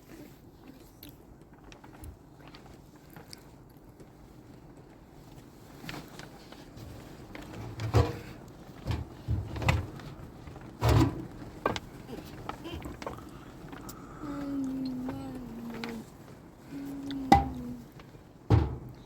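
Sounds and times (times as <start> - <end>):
dull knocks and thumps: 17.2 - 19.0.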